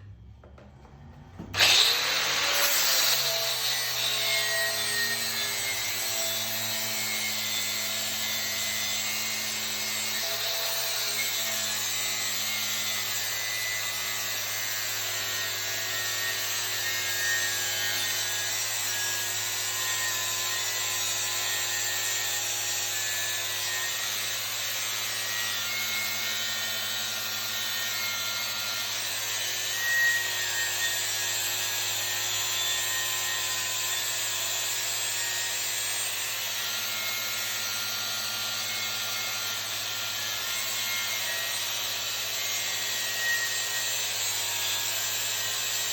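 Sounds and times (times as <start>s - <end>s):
angle grinder grinding metal: 0.9s - 45.9s.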